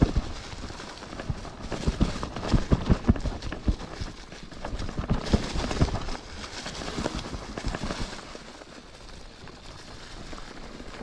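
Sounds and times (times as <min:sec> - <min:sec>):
bike frame and tyres rattling: 0:00.0 - 0:11.0.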